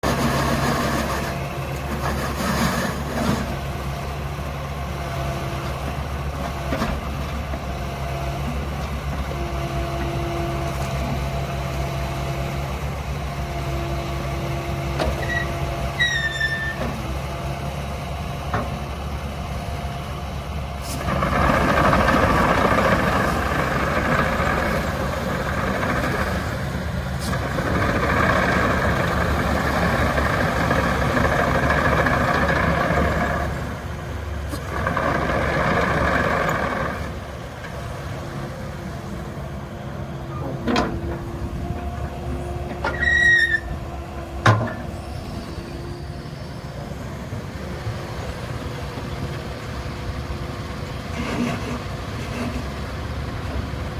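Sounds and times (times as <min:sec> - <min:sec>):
excavator diesel engine idling: 0:00.0 - 0:53.9
short falling squeak: 0:15.2 - 0:16.9, 0:42.8 - 0:43.8.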